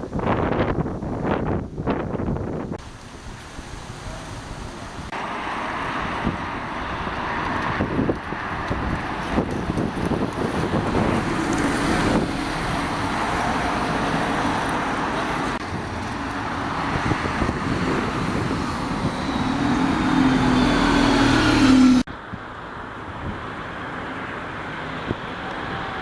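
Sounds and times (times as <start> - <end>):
road traffic noise: 2.4 - 26.0
vehicle engine hum: 4.9 - 26.0.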